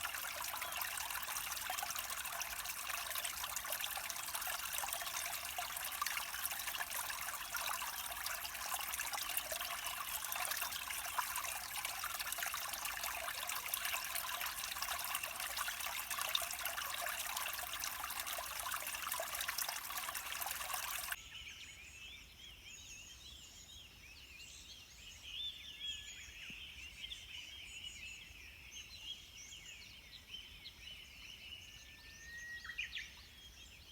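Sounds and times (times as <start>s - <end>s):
stream water babbling: 0.0s - 21.2s.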